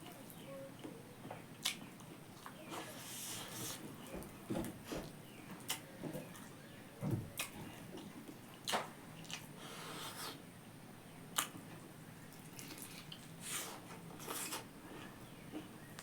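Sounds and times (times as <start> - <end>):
wet chewing and smacking: 1.5 - 2.6, 5.6 - 6.6, 7.3 - 9.6, 11.3 - 14.7.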